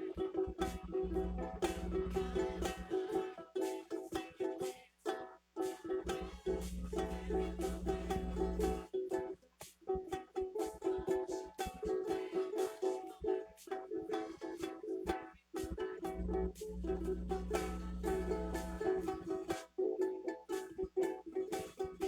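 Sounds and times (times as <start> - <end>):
acoustic string instrument strummed: 0.0 - 22.0
low rumble: 0.7 - 2.9, 6.2 - 8.8, 16.1 - 19.3.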